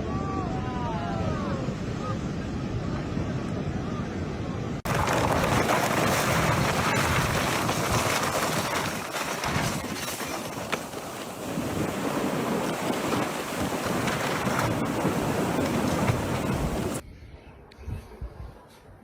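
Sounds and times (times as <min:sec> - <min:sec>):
wind roaring on microphone: 0:00.0 - 0:19.0
sea waves breaking: 0:04.8 - 0:17.0.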